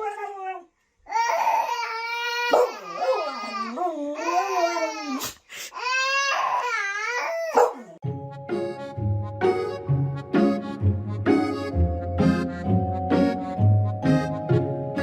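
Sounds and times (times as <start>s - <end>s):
dog whining: 2.4s - 4.5s, 7.2s - 8.0s.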